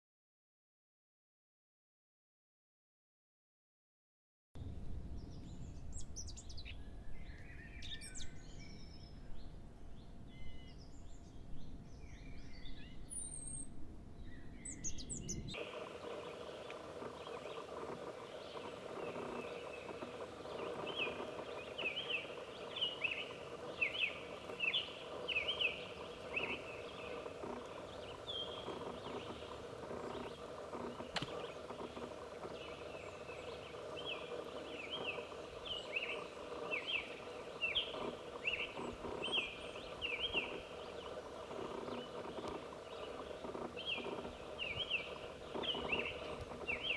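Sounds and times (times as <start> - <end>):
low wind rumble: 4.6 - 46.9
steady background hum: 4.6 - 46.9
small birds chirping: 5.2 - 46.9
bird singing rapid phrases: 5.4 - 9.5, 14.3 - 46.9.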